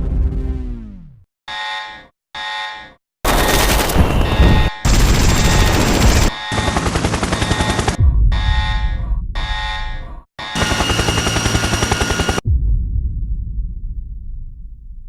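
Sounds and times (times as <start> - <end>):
electronic beep tone: 3.4 - 6.7.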